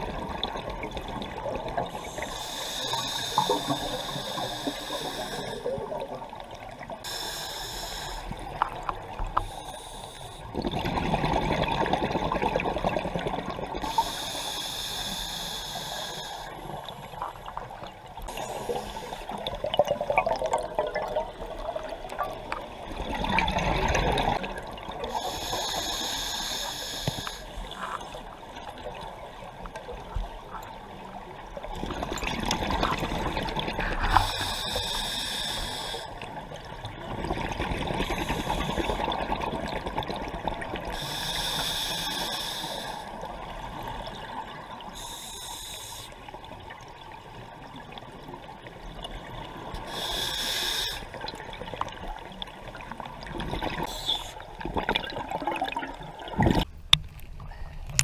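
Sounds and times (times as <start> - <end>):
exhaled bubbles underwater: 0.0 - 7.0, 10.5 - 14.1, 16.6 - 25.3, 28.0 - 34.8, 36.2 - 41.2, 51.1 - 56.7
regulator hissing inhalations: 2.0 - 5.8, 7.0 - 8.4, 9.4 - 10.5, 13.8 - 16.8, 18.3 - 19.4, 25.1 - 27.9, 34.1 - 36.2, 40.9 - 43.2, 45.0 - 46.2, 49.8 - 51.2, 53.8 - 54.4.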